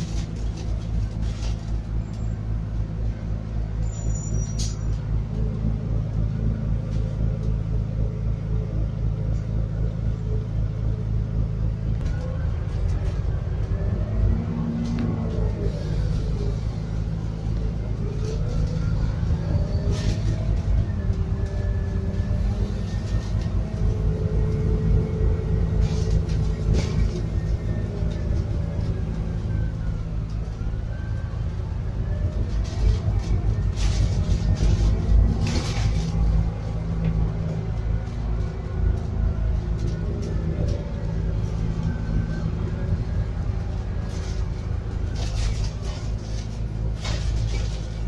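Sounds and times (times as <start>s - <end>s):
bus engine rumbling: 0.0s - 48.0s.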